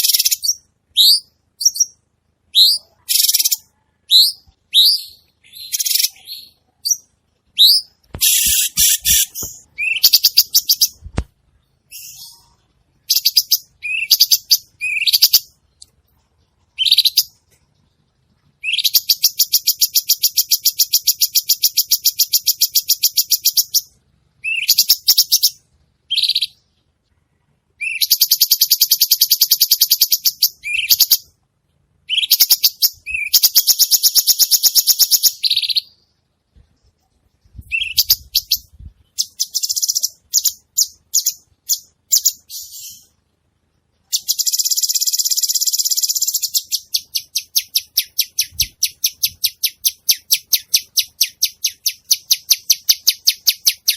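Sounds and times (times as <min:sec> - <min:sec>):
bird trills: 0:00.0 - 0:11.0, 0:11.9 - 0:15.6, 0:27.8 - 0:31.3, 0:32.1 - 0:36.1
bird chirps: 0:00.0 - 0:31.4, 0:32.0 - 0:53.9.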